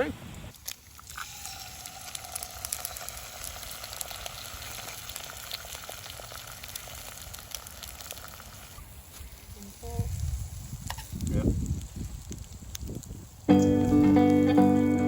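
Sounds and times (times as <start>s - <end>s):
campfire crackling and popping: 0.3s - 15.0s.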